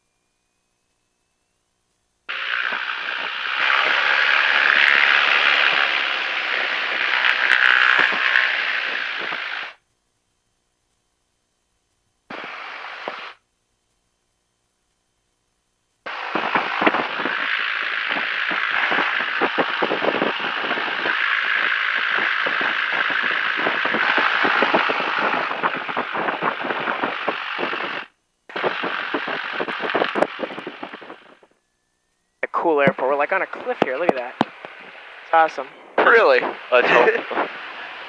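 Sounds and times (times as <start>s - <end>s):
light aircraft engine and propeller: 2.3s - 9.8s, 16.1s - 38.0s.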